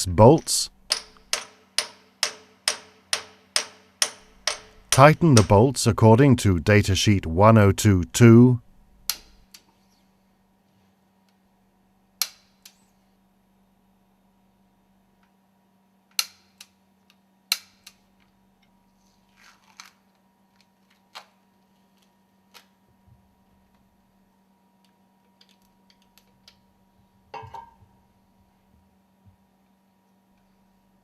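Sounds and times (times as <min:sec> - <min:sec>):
hand tools clicking and tapping: 0:00.9 - 0:05.6.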